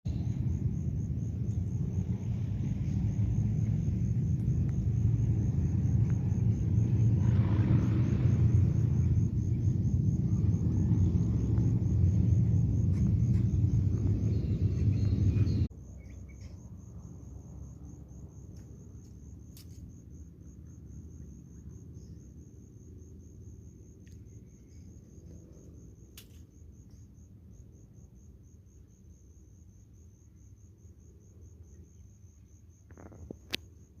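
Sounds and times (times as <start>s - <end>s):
loud low rumble: 0.1s - 15.7s.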